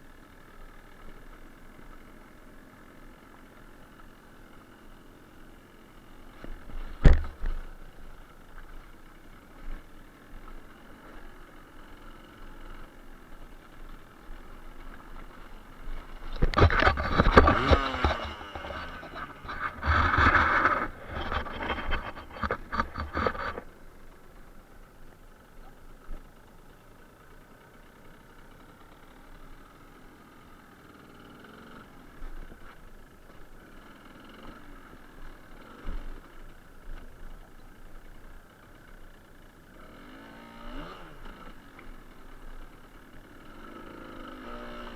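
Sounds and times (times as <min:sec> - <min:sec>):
motorcycle engine running: 0:00.0 - 0:44.9
rapid clatter of knocks: 0:16.3 - 0:23.7.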